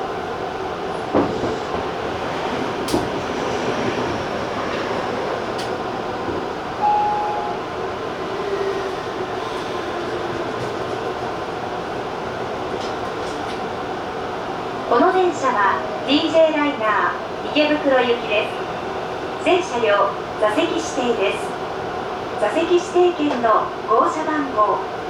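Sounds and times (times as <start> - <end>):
train running noise: 0.0 - 25.0
short tone: 6.8 - 7.6.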